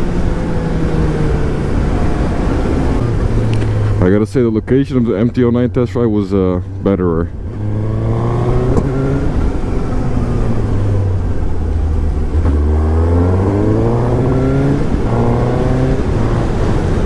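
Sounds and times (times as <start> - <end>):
motorcycle engine accelerating: 6.6 - 17.0.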